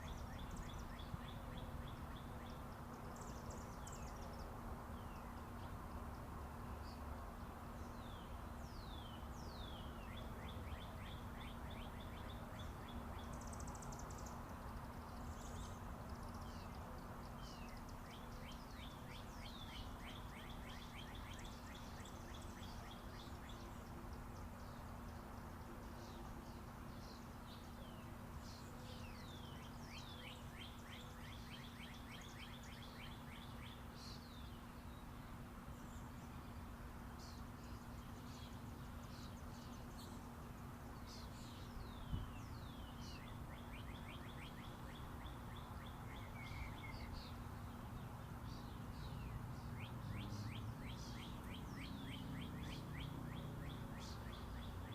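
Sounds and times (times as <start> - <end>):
birds chirping and trilling: 0.0 - 6.2, 7.8 - 54.9
highway traffic rumble: 0.0 - 54.9.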